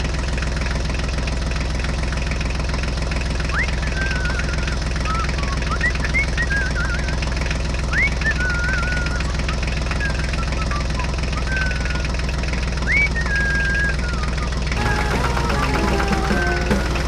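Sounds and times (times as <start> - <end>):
tractor engine chugging: 0.0 - 17.0
short high chirping whistles: 3.5 - 7.1, 7.9 - 12.0, 12.8 - 14.5.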